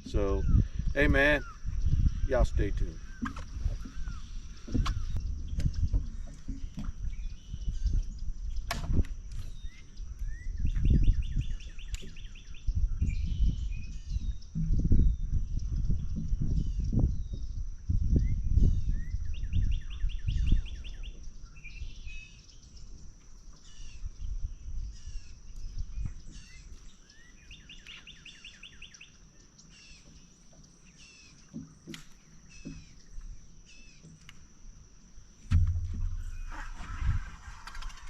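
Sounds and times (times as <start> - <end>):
wind rumbling on microphone: 0.0 - 27.8, 35.4 - 38.0
songbirds chirping and trilling: 0.0 - 38.0.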